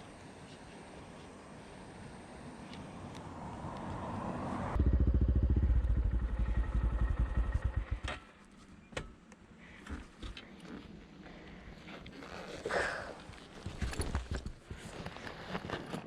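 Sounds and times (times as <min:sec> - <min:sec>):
motorcycle engine exhaust pulse: 0:04.8 - 0:08.4.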